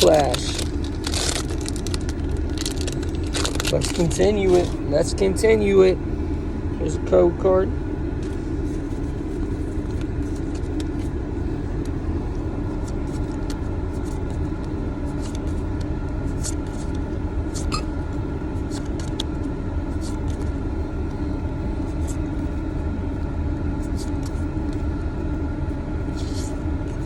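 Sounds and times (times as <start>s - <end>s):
trading cards being handled: 0.0s - 4.9s, 8.2s - 11.2s, 11.8s - 17.9s, 18.6s - 20.5s, 26.2s - 27.0s
low rumble in car cabin: 0.0s - 27.0s.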